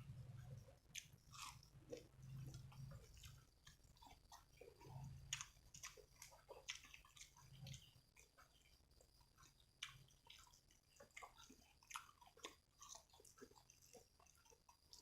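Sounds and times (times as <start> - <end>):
person chewing food: 0.0 - 15.0
wet mouth clicks and smacks: 9.4 - 15.0.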